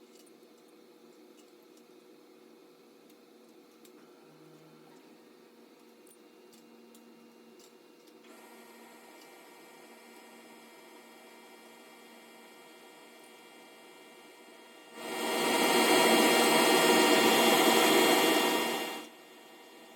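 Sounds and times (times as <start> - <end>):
faint steady hum: 0.0 - 19.9
steady tones: 13.4 - 19.9.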